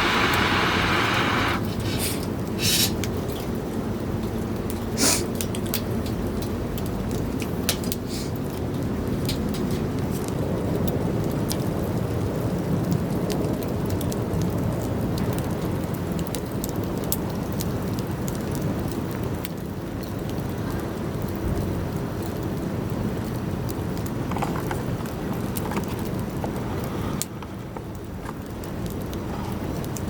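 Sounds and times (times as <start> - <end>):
campfire crackling and popping: 0.0 - 1.7, 13.0 - 30.0.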